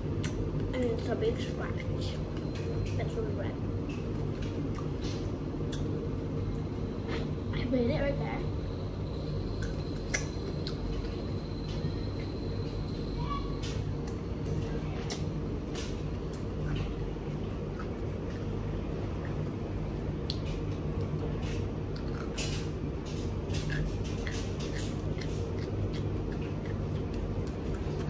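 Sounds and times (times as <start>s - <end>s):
steady low hum: 0.0s - 28.0s
child chewing wet crunches: 3.9s - 7.3s, 9.1s - 13.1s, 13.7s - 28.0s.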